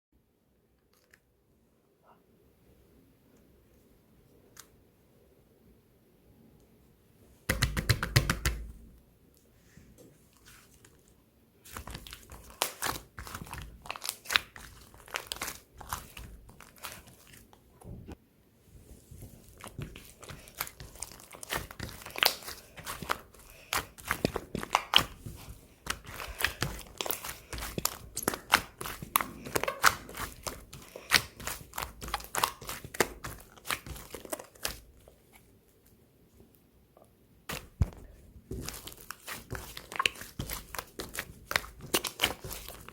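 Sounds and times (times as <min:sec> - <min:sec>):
slime crackling and popping: 0:11.7 - 0:17.4, 0:19.4 - 0:34.9, 0:37.5 - 0:42.9.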